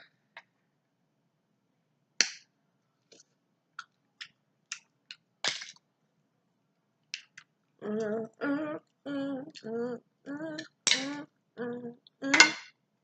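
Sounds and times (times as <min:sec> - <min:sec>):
eating seafood clicks and cracks: 0:07.1 - 0:07.6.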